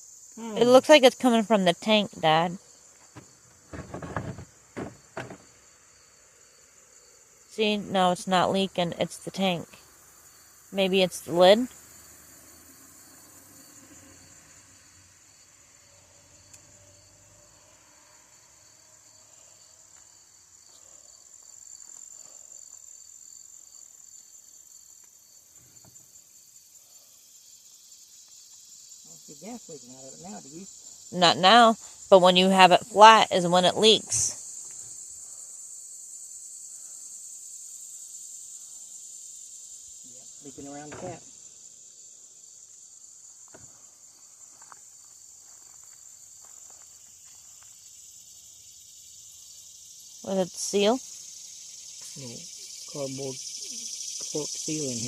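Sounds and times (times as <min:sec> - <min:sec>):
faint high-pitched hiss: 0:00.0 - 0:55.0
insects chirping: 0:00.0 - 0:55.0
faint knocks and rustles: 0:03.0 - 0:05.6.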